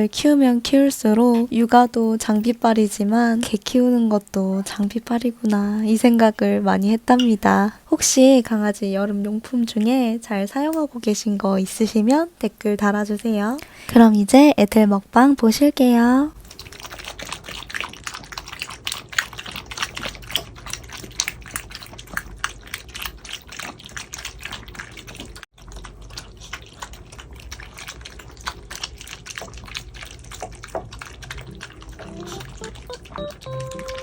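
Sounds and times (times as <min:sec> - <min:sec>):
dogs chewing and licking: 0:16.4 - 0:34.0
soft keyboard notes: 0:31.4 - 0:34.0.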